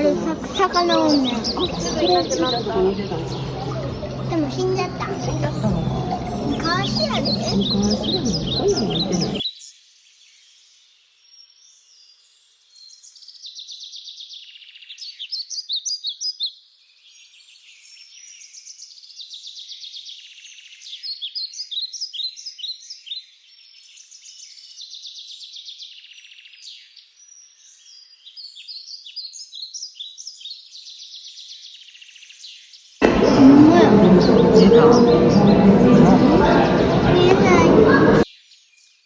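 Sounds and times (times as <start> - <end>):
birds chirping and trilling: 0.0 - 9.6, 20.3 - 39.0.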